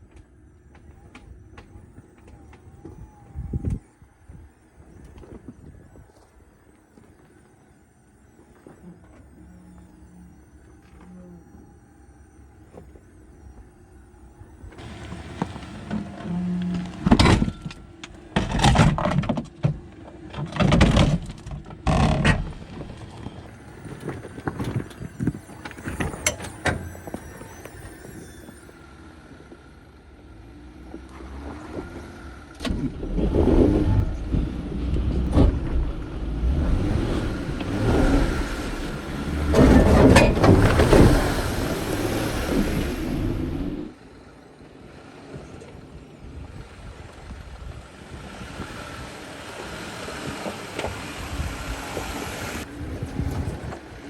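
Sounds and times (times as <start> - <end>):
truck engine revving: 14.6 - 19.3, 19.9 - 44.4.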